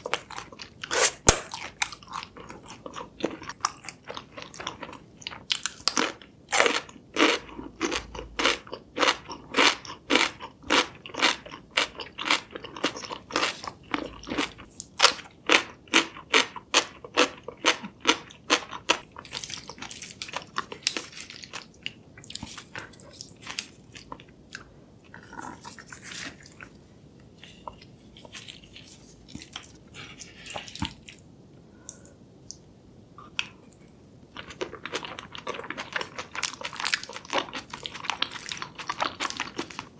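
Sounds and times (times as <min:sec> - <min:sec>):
soft chewing: 0:16.2 - 0:39.9.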